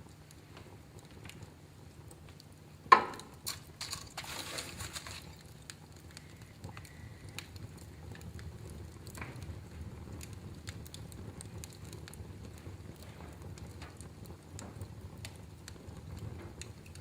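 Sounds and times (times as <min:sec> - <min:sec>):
wood fire crackling: 0:00.0 - 0:17.0
loud sharp pop: 0:02.9 - 0:03.4.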